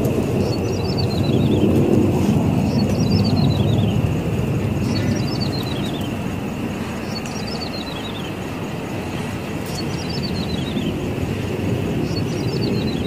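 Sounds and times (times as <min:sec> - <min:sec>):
bird song high clicking notes: 0:07.1 - 0:08.2.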